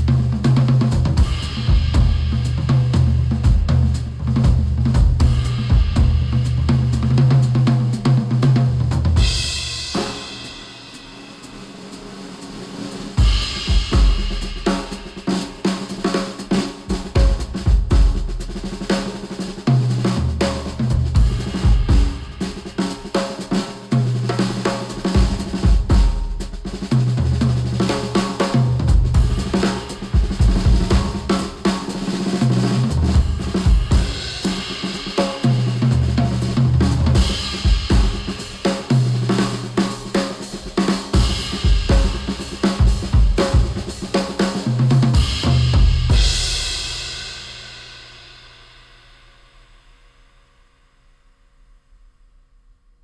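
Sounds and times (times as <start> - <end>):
drum kit: 0.0 - 50.3
heavy bass line: 0.9 - 7.0.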